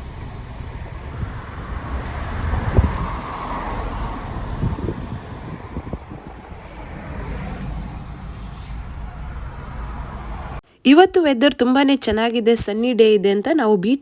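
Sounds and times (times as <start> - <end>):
car road and engine rumble: 0.0 - 10.6
tyres hissing: 0.0 - 10.6.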